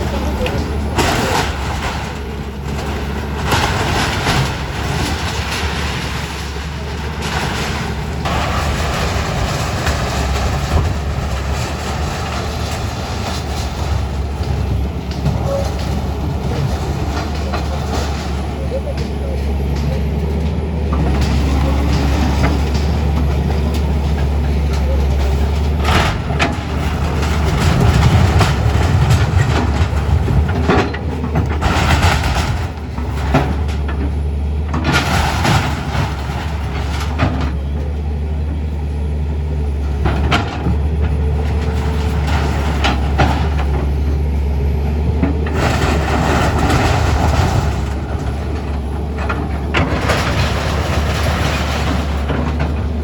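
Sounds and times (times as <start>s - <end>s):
clanks knocks and rattles: 0.0s - 38.7s, 39.4s - 53.0s
heavy engine running: 0.0s - 53.0s.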